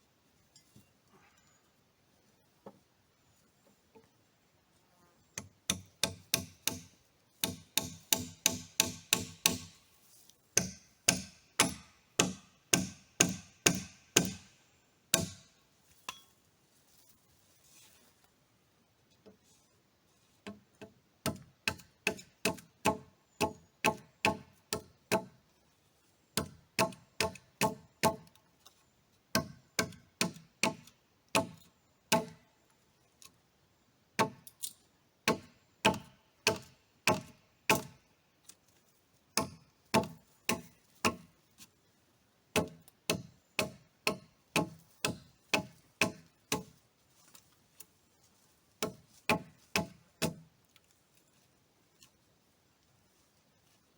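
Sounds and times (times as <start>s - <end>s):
hand tool striking wood: 5.4s - 9.8s, 10.6s - 14.5s, 15.1s - 16.3s, 26.4s - 28.3s, 35.3s - 38.0s, 39.4s - 41.3s, 42.6s - 46.8s, 48.8s - 50.5s.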